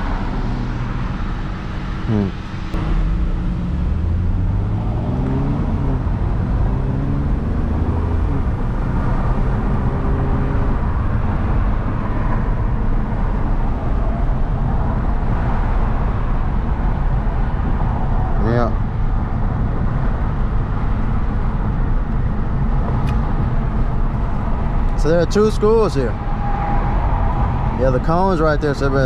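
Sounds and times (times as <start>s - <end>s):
car engine: 0.0s - 29.0s
tyre and road noise: 0.0s - 29.0s.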